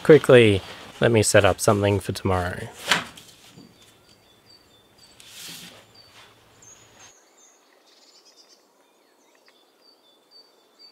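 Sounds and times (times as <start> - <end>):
soft brushing sound: 0.0 - 4.0, 5.2 - 7.2
small birds chirping: 3.4 - 10.9.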